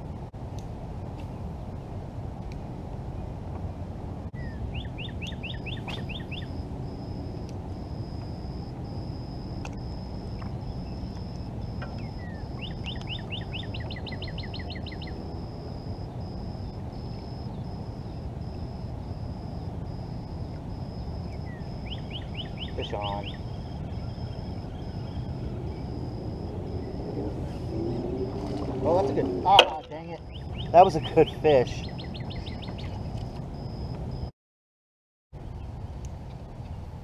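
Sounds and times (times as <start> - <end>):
low outdoor hum: 0.0 - 34.3, 35.4 - 37.0
songbird singing: 4.4 - 34.3
high-pitched broken whine: 5.1 - 34.3.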